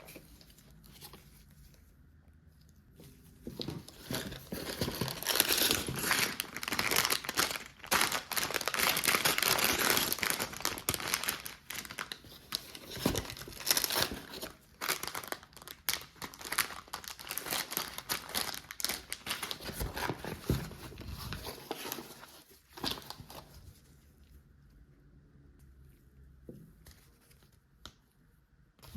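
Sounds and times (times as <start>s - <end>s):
packaging crinkling and tearing: 3.5s - 23.6s.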